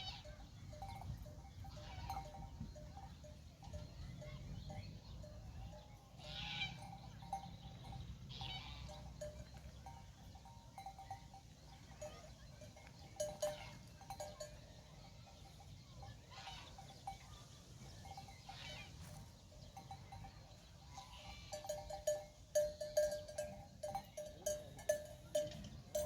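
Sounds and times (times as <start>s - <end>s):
animal bells clinking: 0.0s - 26.0s
animal calls: 6.2s - 9.5s.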